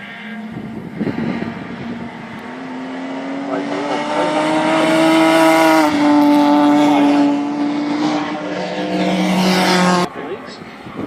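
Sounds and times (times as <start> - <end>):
racing car engine at high revs: 0.0 - 10.2.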